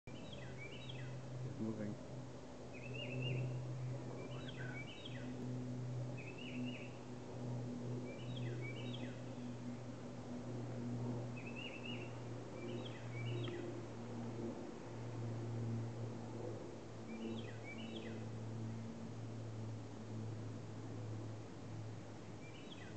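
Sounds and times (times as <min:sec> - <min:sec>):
songbird singing: 0:00.1 - 0:02.0, 0:02.6 - 0:14.5, 0:17.0 - 0:19.6, 0:22.3 - 0:22.9
steady low hum: 0:00.1 - 0:22.9.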